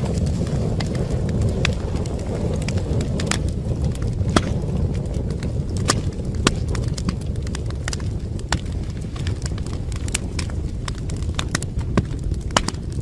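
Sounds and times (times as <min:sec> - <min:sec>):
burning wood crackling and popping: 0:00.0 - 0:13.0
low rumble of flames: 0:00.0 - 0:13.0.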